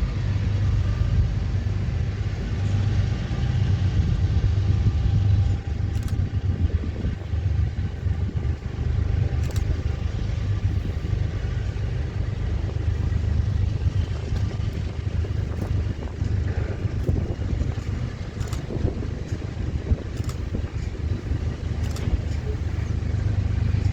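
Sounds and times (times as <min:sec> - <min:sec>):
freight train rumbling: 0:00.0 - 0:23.9
brief clicks: 0:05.9 - 0:06.2, 0:09.4 - 0:09.8, 0:21.8 - 0:22.4.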